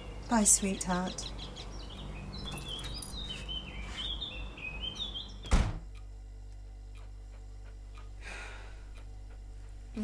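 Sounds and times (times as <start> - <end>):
birds chirping: 0.0 - 5.5
door shutting with thud: 5.4 - 5.9.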